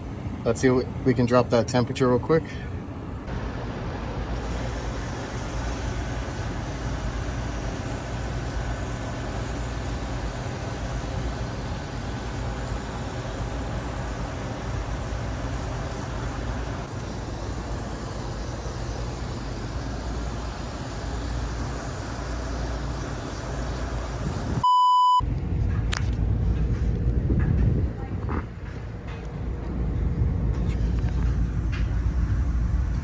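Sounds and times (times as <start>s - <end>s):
air conditioner rumbling: 0.0s - 33.0s
short electronic beep: 24.6s - 25.2s.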